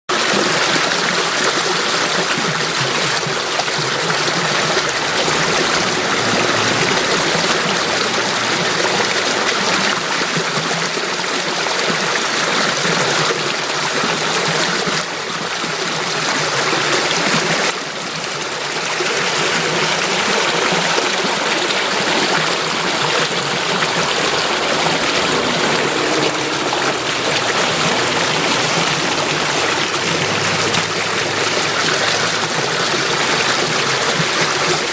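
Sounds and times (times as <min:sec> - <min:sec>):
stream water flowing: 0:00.1 - 0:34.9.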